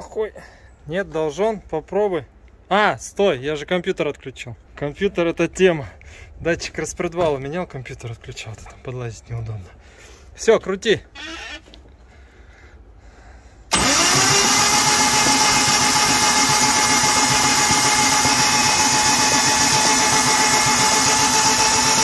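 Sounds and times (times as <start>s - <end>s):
car engine starting and running: 13.7s - 22.0s.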